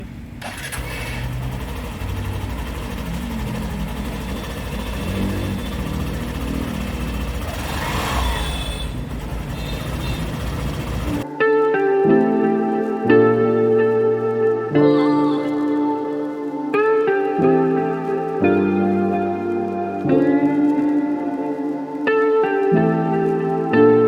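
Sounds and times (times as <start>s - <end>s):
motorcycle engine running: 0.4s - 11.2s.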